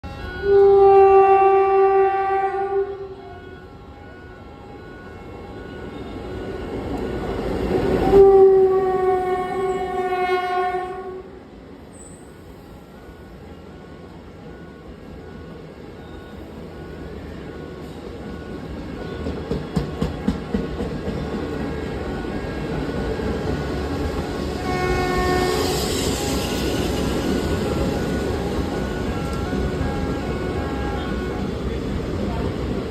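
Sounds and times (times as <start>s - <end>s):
train rushing past: 0.0s - 32.9s
locomotive air horn blast: 0.1s - 5.6s, 8.0s - 11.4s, 24.5s - 31.7s.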